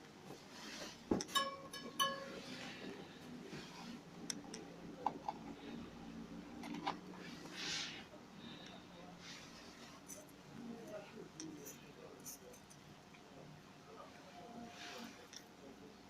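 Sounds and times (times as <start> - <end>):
hard object ringing clinks: 1.3 - 2.5.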